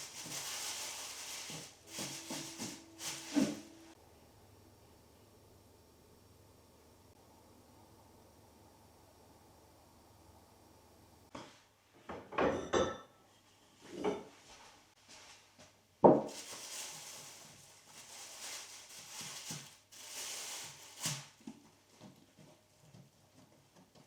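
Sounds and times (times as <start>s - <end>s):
rustling hiss: 0.0s - 4.0s.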